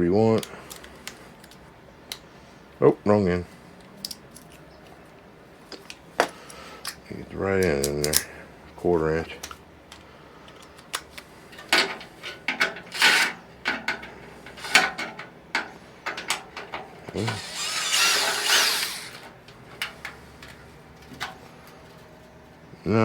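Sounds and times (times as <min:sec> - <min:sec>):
metal scraping: 0:17.2 - 0:19.3.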